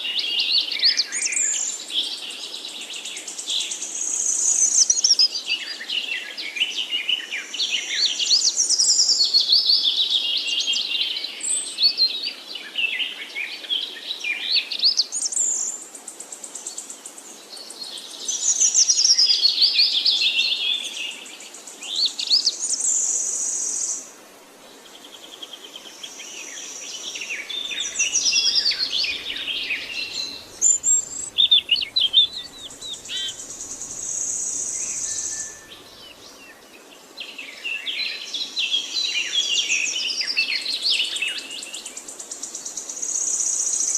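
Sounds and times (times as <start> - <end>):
songbird warbling: 27.1 - 36.6.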